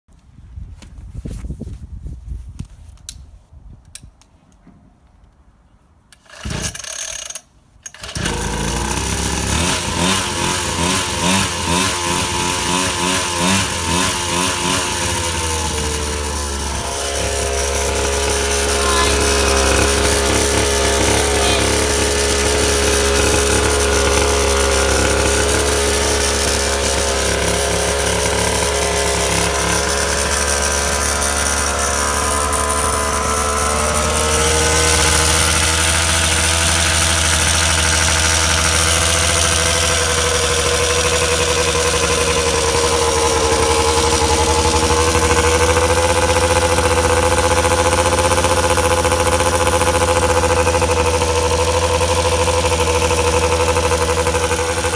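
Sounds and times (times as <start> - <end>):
dirt bike engine idling: 7.9 - 54.9.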